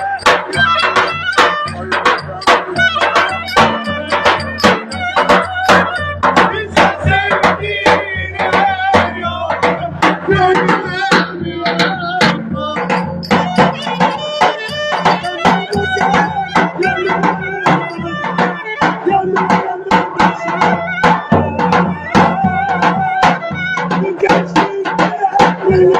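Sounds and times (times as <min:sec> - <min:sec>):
folk dance band music: 0:00.0 - 0:06.2
steady drum beats: 0:00.0 - 0:18.6.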